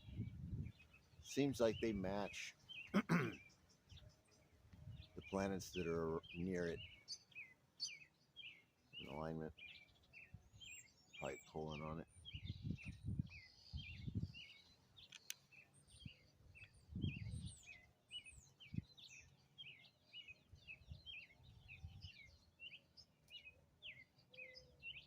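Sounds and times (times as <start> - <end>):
wind rumble on microphone: 0.0 - 2.3, 3.9 - 7.0, 12.0 - 14.6, 15.9 - 17.8, 18.4 - 19.2, 20.5 - 22.4
small birds chirping: 0.0 - 25.0.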